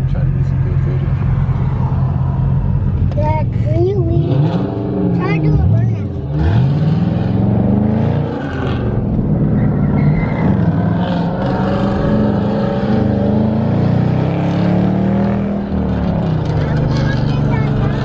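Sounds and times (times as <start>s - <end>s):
car engine revving hard: 4.0s - 18.0s.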